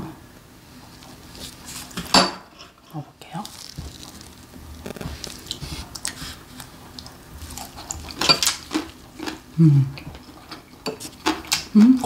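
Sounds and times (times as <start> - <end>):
wet chewing and mouth smacks: 3.4 - 11.8.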